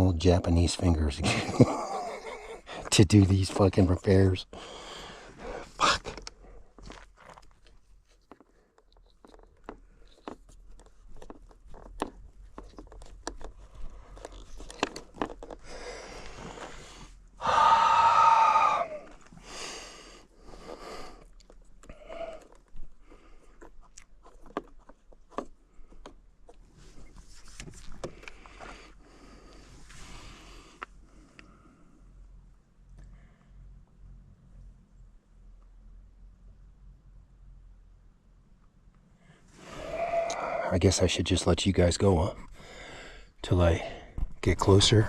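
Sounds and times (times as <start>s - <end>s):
person groaning: 17.4s - 19.2s, 39.7s - 40.7s.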